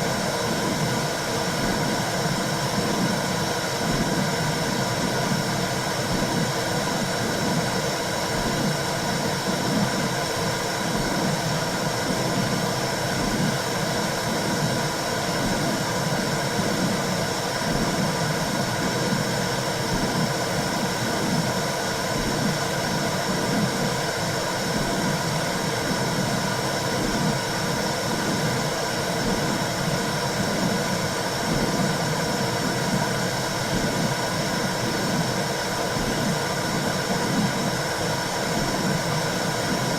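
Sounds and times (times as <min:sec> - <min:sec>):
slow rhythmic heartbeat pulse: 0:00.3 - 0:39.9.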